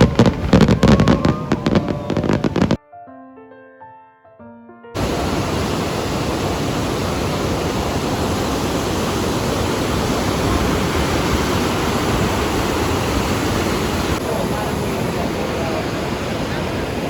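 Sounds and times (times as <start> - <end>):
loud steady rushing noise: 0.0 - 2.8, 5.0 - 17.0
music: 2.8 - 5.0.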